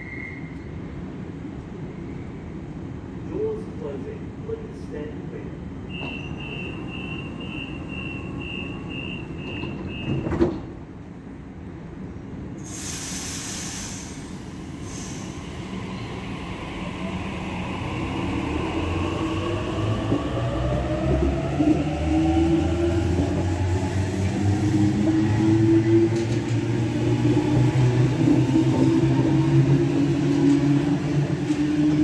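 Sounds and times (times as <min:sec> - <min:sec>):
train door-closing beeps: 0:00.0 - 0:00.8, 0:05.8 - 0:10.7
train rumble: 0:00.0 - 0:32.0
air hiss: 0:12.6 - 0:15.8.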